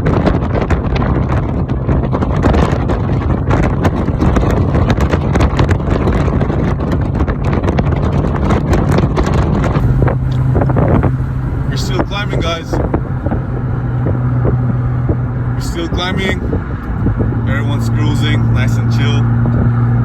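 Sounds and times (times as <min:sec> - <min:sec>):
car engine hum: 0:00.0 - 0:20.0
road noise: 0:00.0 - 0:20.0
wind buffeting microphone: 0:00.0 - 0:20.0.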